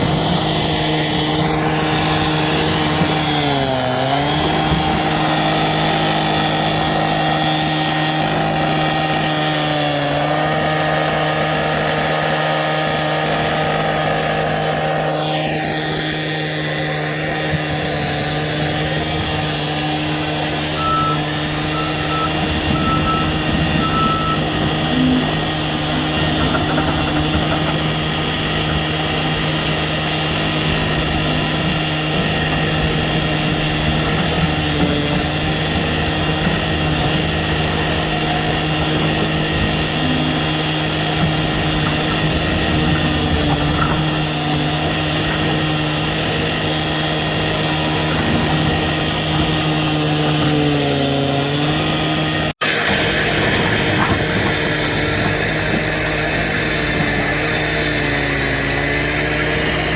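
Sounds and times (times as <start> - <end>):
diesel engine running: 0.0 - 59.9
high warning beeps: 20.8 - 25.2.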